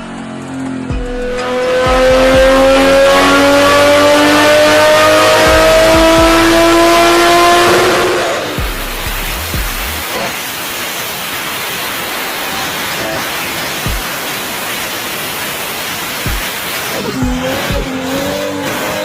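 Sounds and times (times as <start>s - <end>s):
car engine accelerating hard: 0.0s - 10.4s, 16.3s - 19.0s.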